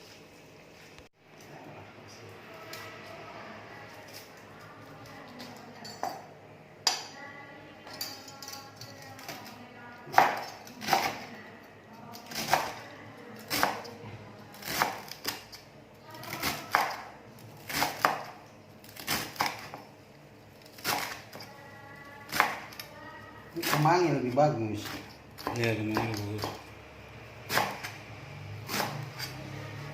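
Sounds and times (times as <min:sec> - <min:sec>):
knife chopping on cutting board: 0:10.1 - 0:11.2, 0:16.4 - 0:17.1, 0:17.7 - 0:18.4, 0:22.3 - 0:22.8, 0:24.8 - 0:26.7, 0:27.5 - 0:28.0, 0:28.7 - 0:29.4.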